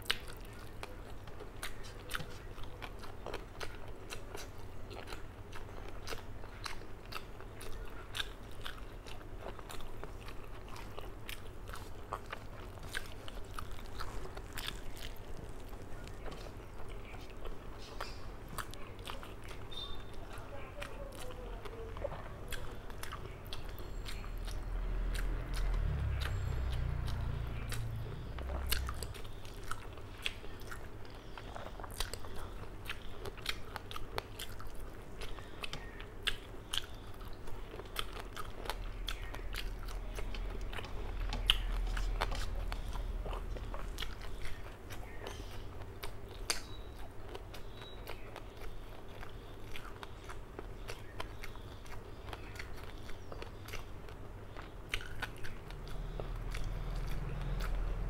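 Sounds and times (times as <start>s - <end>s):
chewing food: 0.0s - 58.0s
low rumble: 22.1s - 29.3s, 38.7s - 44.5s.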